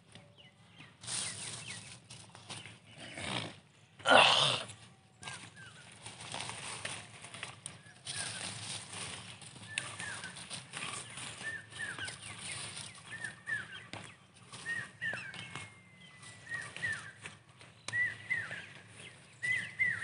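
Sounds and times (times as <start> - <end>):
bird chirping: 9.2 - 20.0
thin bird whistle: 9.7 - 13.9, 14.6 - 17.2, 17.9 - 18.7, 19.4 - 20.0.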